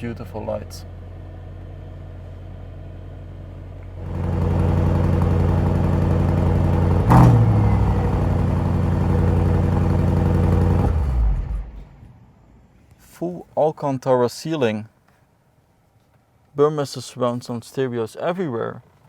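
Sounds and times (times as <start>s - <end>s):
car engine idling: 0.0s - 12.8s
engine revving burst: 4.0s - 12.0s.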